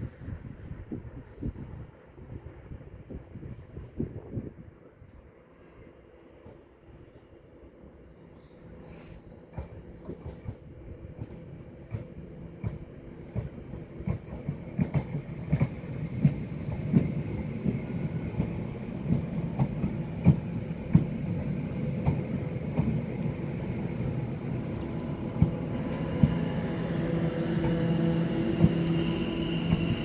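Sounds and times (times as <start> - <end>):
train hum: 0.0 - 30.0
train wheels clicking over rail joints: 9.3 - 30.0.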